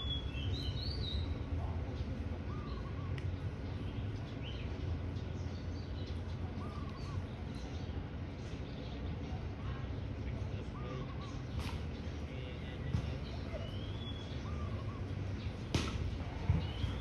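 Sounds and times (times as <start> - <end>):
low arched bird call: 2.4 - 4.6.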